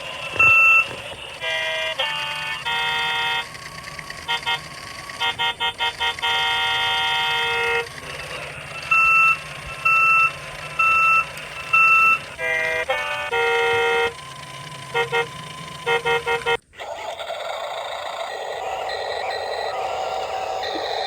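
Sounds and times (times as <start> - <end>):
electronic toy horn honking: 0.0 - 16.9
reversing beeps: 8.7 - 12.2.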